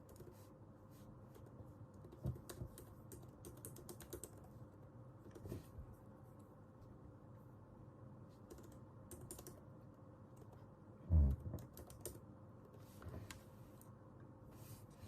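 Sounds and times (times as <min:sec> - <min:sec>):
typing on computer keyboard: 0:01.4 - 0:04.6, 0:08.4 - 0:09.7, 0:11.5 - 0:12.2.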